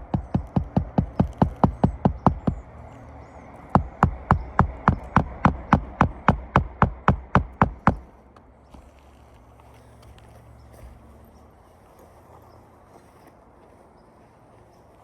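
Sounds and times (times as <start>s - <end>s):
hammer blows on roof: 0.0s - 2.8s, 3.7s - 8.1s.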